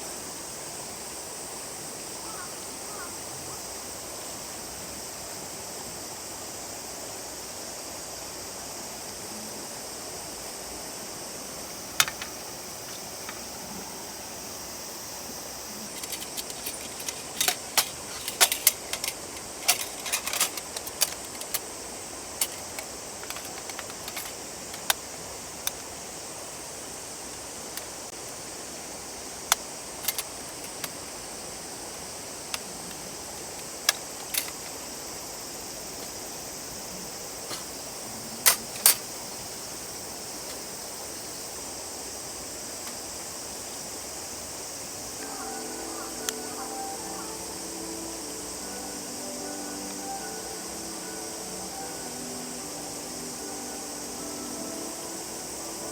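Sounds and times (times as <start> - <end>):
sharp clicks and clinks: 12.0 - 13.5, 15.8 - 21.7, 22.4 - 25.8, 30.0 - 30.9, 33.6 - 34.8, 38.5 - 39.1.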